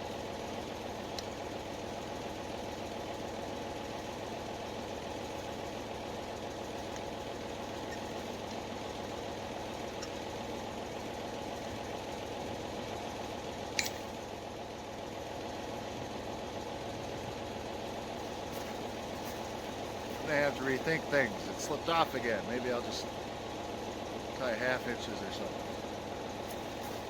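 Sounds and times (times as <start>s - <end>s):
tractor engine idling: 0.0s - 27.0s.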